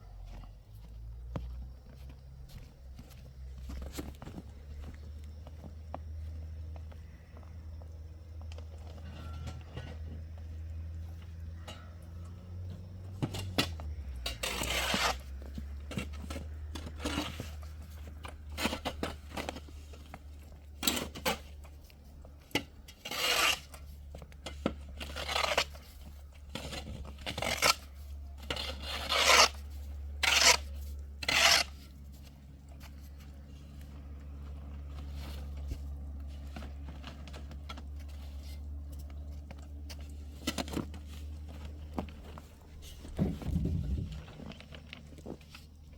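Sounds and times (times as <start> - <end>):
rasping scraping strokes: 14.2 - 17.7, 22.9 - 23.9, 25.0 - 32.4.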